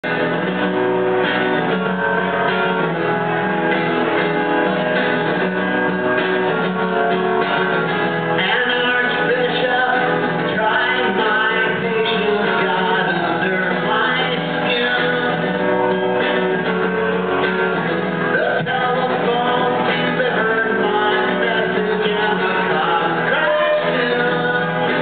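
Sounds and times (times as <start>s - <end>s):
guitar playing: 0.0s - 25.0s
person singing: 8.3s - 16.7s, 18.3s - 25.0s.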